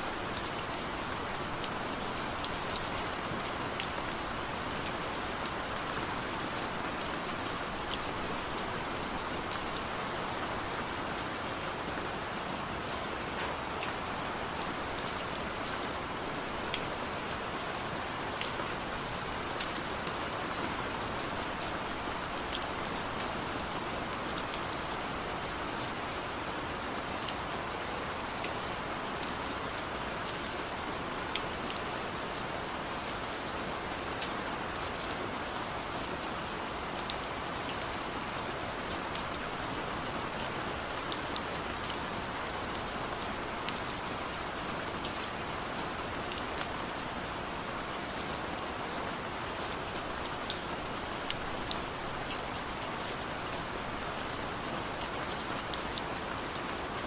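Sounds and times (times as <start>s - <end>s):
steady rain hissing: 0.0s - 57.0s.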